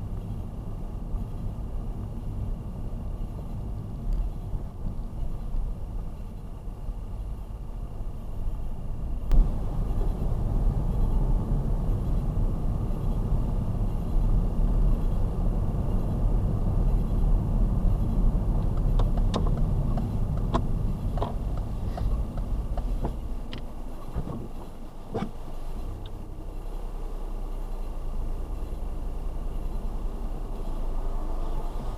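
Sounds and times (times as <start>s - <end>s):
car engine and road noise: 0.0s - 31.9s
sharp clicks and taps: 18.7s - 23.7s.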